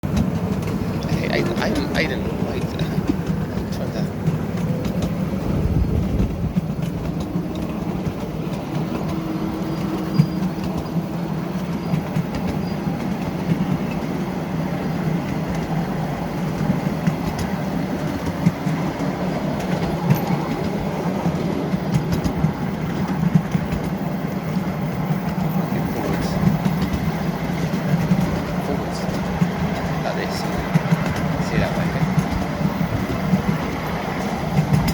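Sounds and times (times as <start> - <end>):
miniature train rumbling: 0.0 - 34.9
wheels clicking on rails: 0.0 - 34.9.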